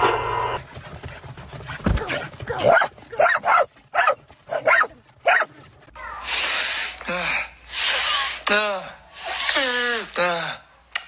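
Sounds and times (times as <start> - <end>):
dog barking: 2.6 - 5.6.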